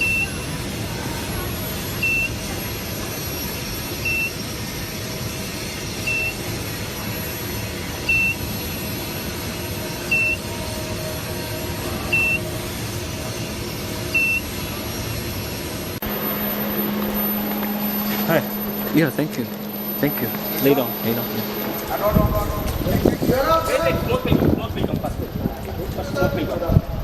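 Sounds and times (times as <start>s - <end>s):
steady machine noise: 0.4s - 26.6s
steady low hum: 15.9s - 25.9s
short high electronic beep: 16.0s - 23.9s.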